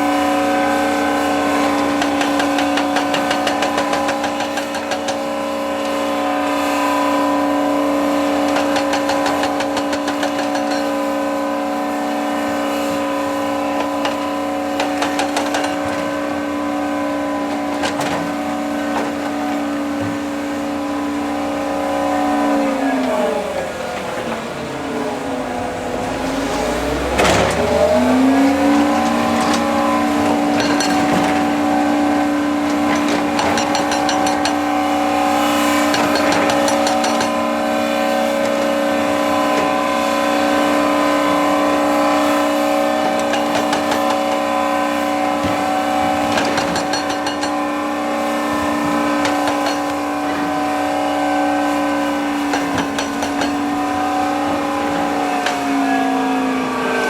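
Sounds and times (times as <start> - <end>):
heavy machinery diesel engine: 0.0 - 57.0
clanks: 1.6 - 6.0, 8.1 - 11.4, 12.7 - 21.0, 23.0 - 40.0, 43.0 - 47.8, 48.5 - 56.0.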